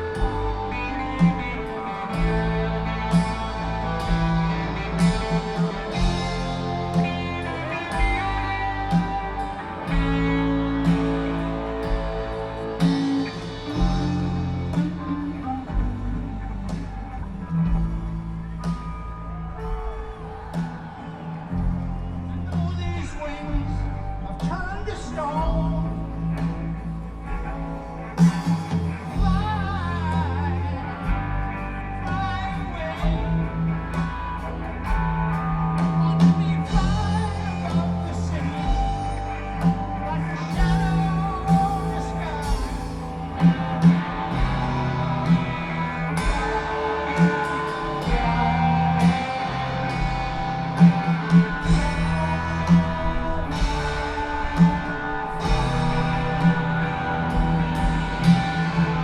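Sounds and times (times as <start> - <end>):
live rock band: 0.0 - 59.0
person singing: 28.2 - 34.7, 35.3 - 59.0.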